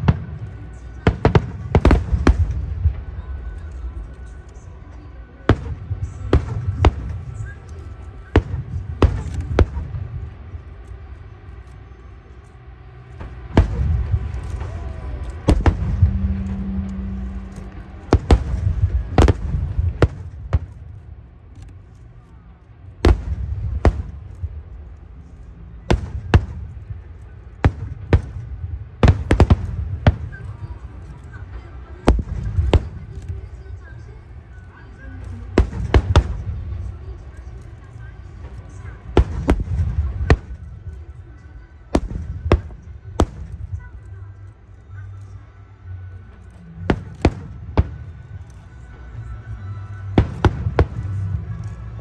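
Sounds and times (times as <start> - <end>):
low rumble: 0.0 - 52.0
firework shells bursting: 5.5 - 44.2.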